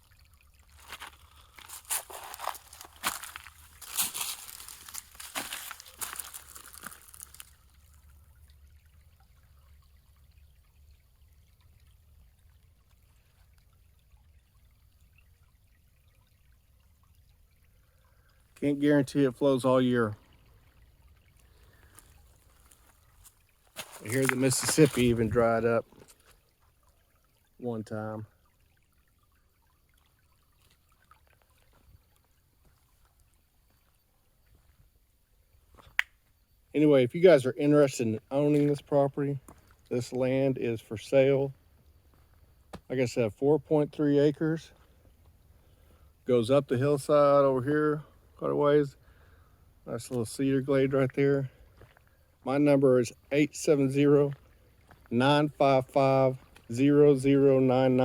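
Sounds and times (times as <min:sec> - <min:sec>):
creek trickling: 0:00.0 - 0:58.0
crackly rustle: 0:00.6 - 0:08.1, 0:21.4 - 0:25.3.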